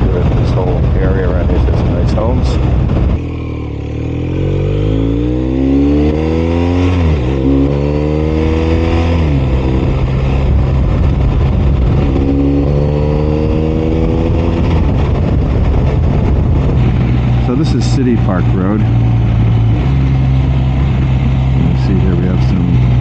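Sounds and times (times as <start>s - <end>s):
motorcycle engine accelerating through gears: 0.0s - 23.0s.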